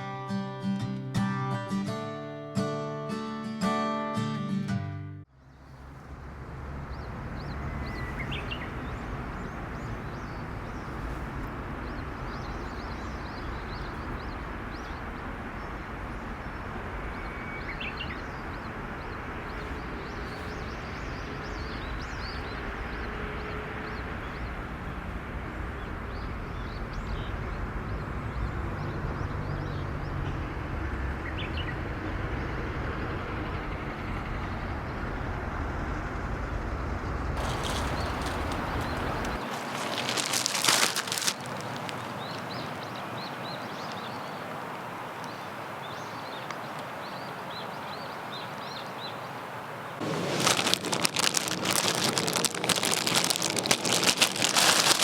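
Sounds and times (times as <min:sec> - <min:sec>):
bird chirping: 0:06.9 - 0:11.2, 0:37.4 - 0:44.5.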